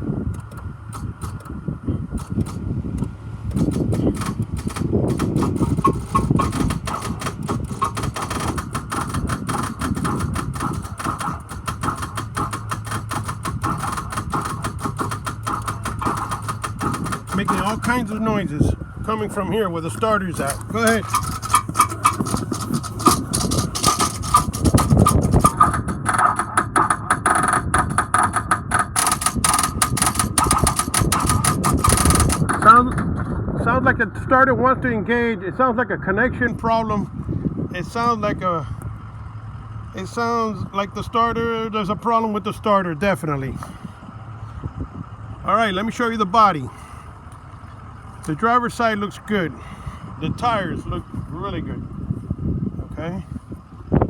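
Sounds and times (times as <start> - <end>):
low grinding rumble: 0.0 - 54.0
starter motor clicking rapidly: 0.3 - 33.4, 43.0 - 44.0.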